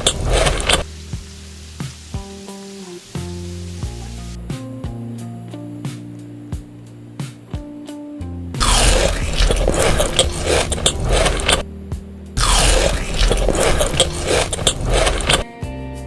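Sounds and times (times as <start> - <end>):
chewing crisp food: 0.0 - 0.9, 8.6 - 11.6, 12.4 - 15.4.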